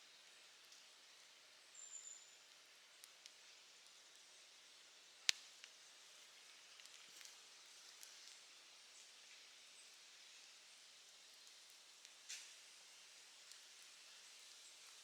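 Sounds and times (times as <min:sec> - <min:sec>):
campfire crackling: 0:05.0 - 0:08.5, 0:11.3 - 0:15.0.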